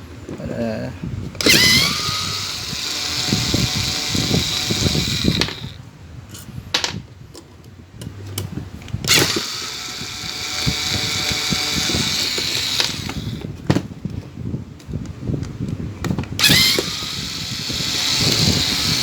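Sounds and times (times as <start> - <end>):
small motor tool whining: 1.4 - 5.8, 9.1 - 13.5, 16.4 - 19.0.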